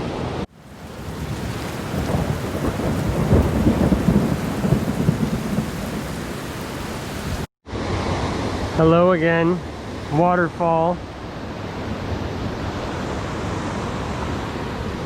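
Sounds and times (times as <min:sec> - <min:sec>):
heavy rain falling: 0:00.5 - 0:07.5
thunder rumbling: 0:00.5 - 0:07.5.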